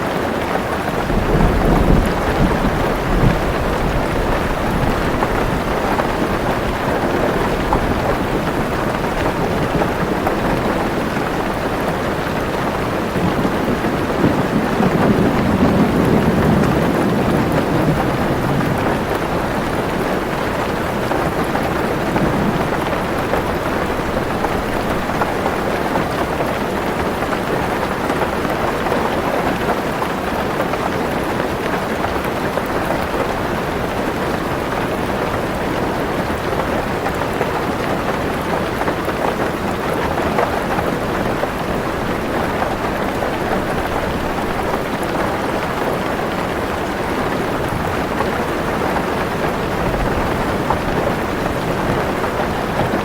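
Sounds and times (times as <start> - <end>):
heavy rain on a car roof: 0.0 - 53.0.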